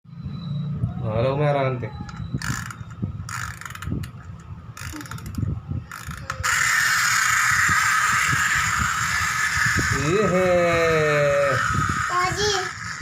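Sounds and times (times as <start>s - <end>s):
toy train clicking and whirring: 4.8s - 13.0s.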